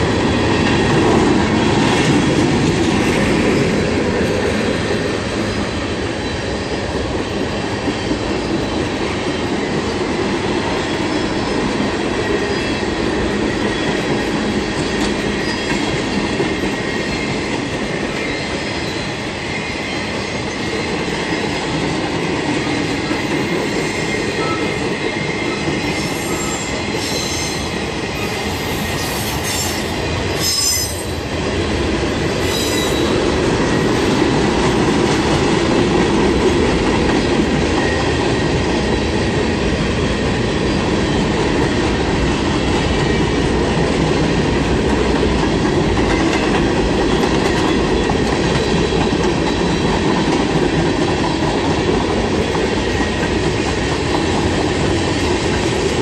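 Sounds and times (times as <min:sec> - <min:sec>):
train wheels rumbling on rail: 0:00.0 - 0:56.0
high-pitched wheel squeals: 0:25.8 - 0:31.2.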